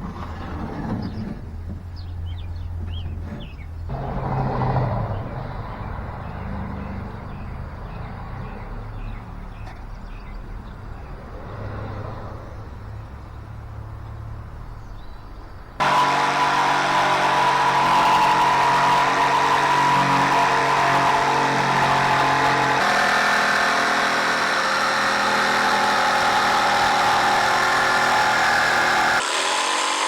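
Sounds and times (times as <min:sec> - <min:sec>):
motor running with a whine: 0:15.8 - 0:30.0.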